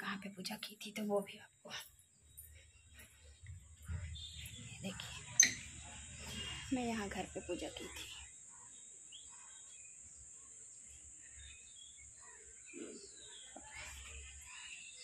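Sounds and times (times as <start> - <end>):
bird chirps: 2.1 - 6.6.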